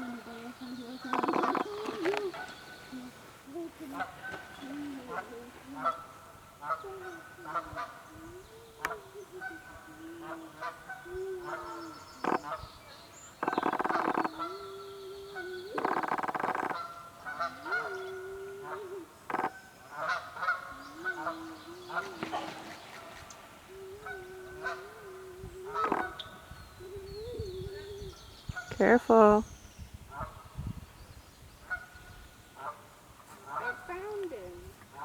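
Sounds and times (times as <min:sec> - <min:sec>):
geese honking: 0:01.0 - 0:12.8, 0:13.4 - 0:26.5, 0:32.6 - 0:34.4.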